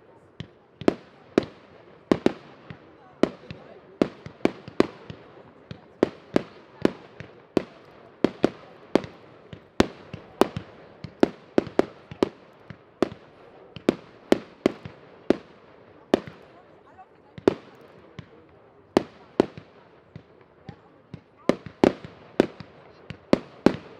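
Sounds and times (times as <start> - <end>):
fireworks bangs: 0.4 - 23.9.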